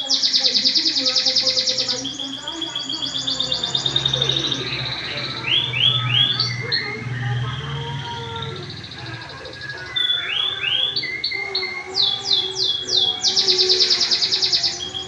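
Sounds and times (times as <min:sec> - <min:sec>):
canary singing trills: 0:00.0 - 0:15.0.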